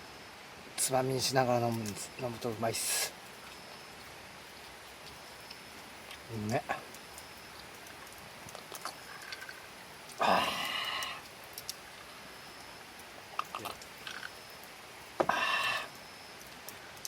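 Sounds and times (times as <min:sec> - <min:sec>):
person sipping a drink: 0:15.2 - 0:15.9.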